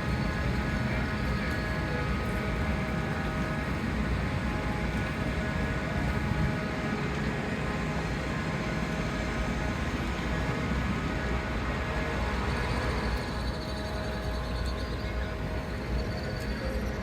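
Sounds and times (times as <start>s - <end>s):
steady whine: 0.0s - 17.0s.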